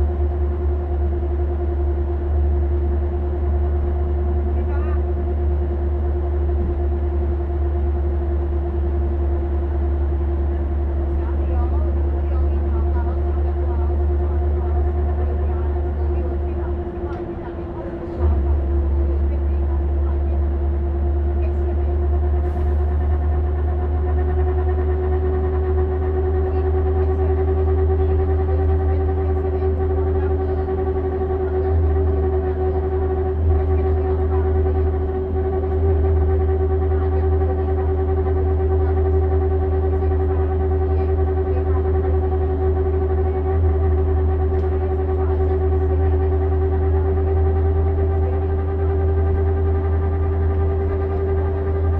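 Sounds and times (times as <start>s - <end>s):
bus engine drone: 0.0s - 51.9s
constant whine: 0.0s - 51.9s.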